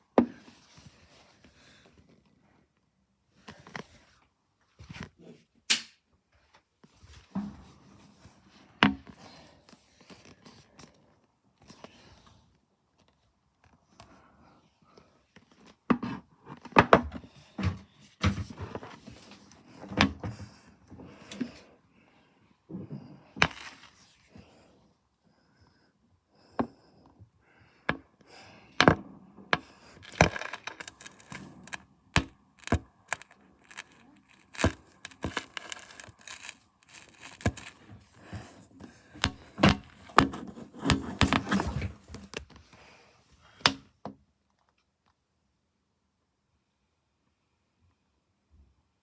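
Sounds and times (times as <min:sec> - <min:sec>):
fireworks bangs and crackling: 0:32.6 - 0:37.7.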